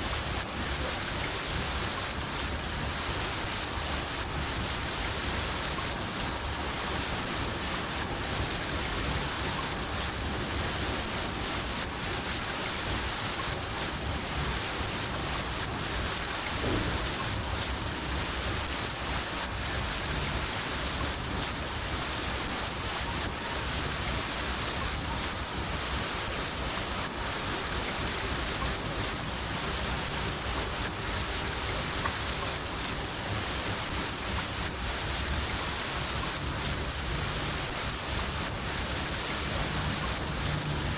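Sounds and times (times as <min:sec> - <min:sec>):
cricket chirping: 0:00.0 - 0:40.9
steady rain: 0:00.0 - 0:40.9
distant thunder rumble: 0:16.6 - 0:17.6.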